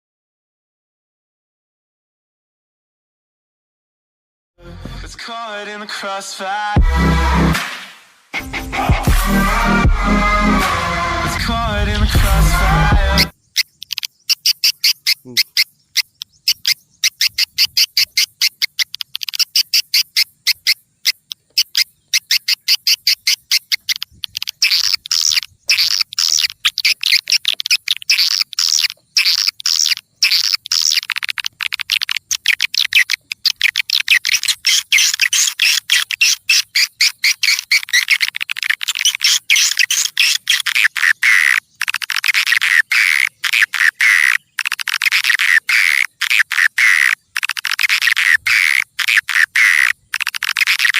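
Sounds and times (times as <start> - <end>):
high chittering bird twitters: 13.1 - 50.9.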